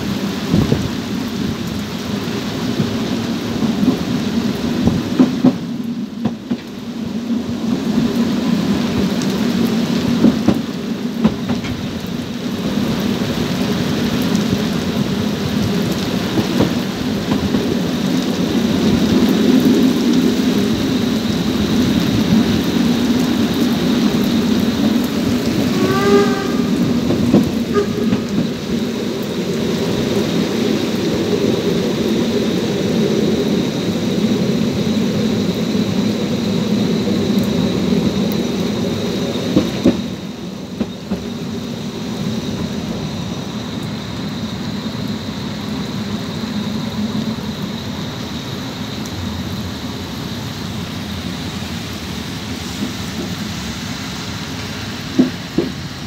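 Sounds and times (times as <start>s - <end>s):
heavy rain: 0.0s - 56.0s
train wheels rumbling: 0.0s - 56.0s
brief squeal: 25.7s - 27.0s.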